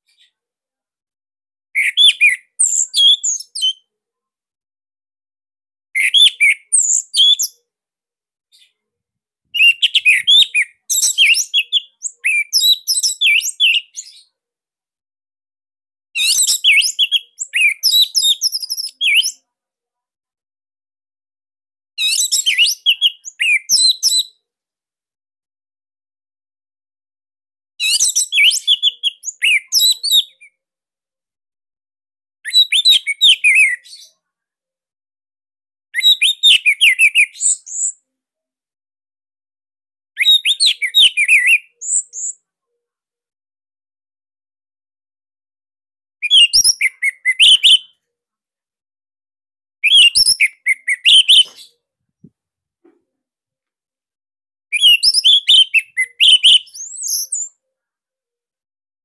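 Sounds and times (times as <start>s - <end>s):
thrush singing whistled notes: 9.6s - 13.9s, 49.8s - 51.7s, 54.7s - 57.5s.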